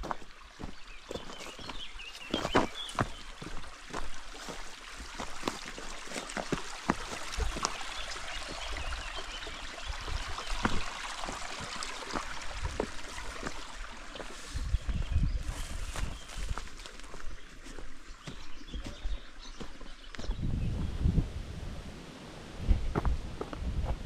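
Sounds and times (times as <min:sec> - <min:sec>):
waterfall rushing: 0:01.5 - 0:14.6.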